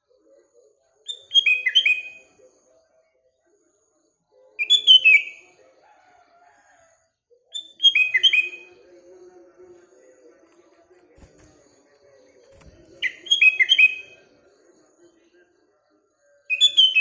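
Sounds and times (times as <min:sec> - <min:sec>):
bird singing whistled notes: 0:01.1 - 0:02.2, 0:07.6 - 0:08.7, 0:13.0 - 0:14.2, 0:16.5 - 0:17.0.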